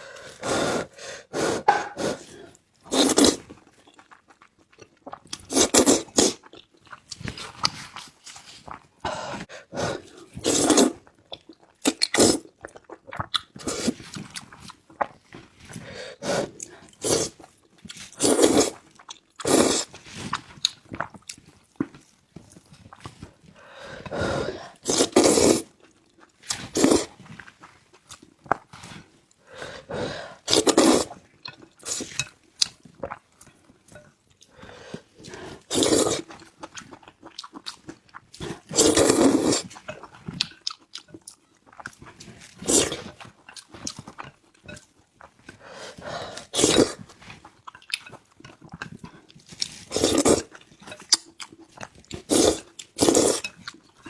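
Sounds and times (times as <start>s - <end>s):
noodle slurping: 0.0s - 3.5s, 5.4s - 6.5s, 9.1s - 11.0s, 11.9s - 12.6s, 13.6s - 14.1s, 15.8s - 17.5s, 18.1s - 18.8s, 19.4s - 20.0s, 24.0s - 25.8s, 26.5s - 27.2s, 29.6s - 31.2s, 34.8s - 36.5s, 38.4s - 39.8s, 42.6s - 43.2s, 45.8s - 47.2s, 49.8s - 50.6s, 52.1s - 53.6s
chewing and mouth sounds: 1.6s - 15.8s, 30.4s - 54.0s.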